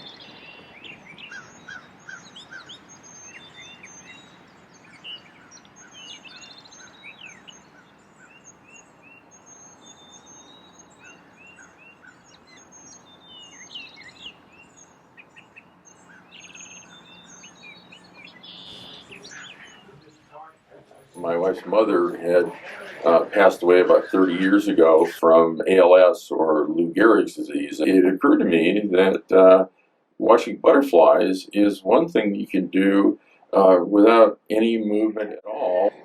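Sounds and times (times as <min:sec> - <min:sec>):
faint outdoor background: 0:00.0 - 0:36.0
wild birds chirping and singing: 0:00.0 - 0:36.0.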